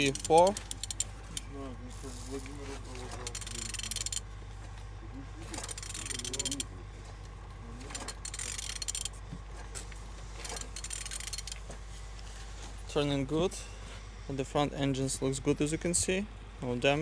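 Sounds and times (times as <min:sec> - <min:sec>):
wrench turning crankshaft: 0:00.0 - 0:01.5, 0:03.0 - 0:04.2, 0:05.5 - 0:06.7, 0:07.9 - 0:09.2, 0:10.4 - 0:11.7.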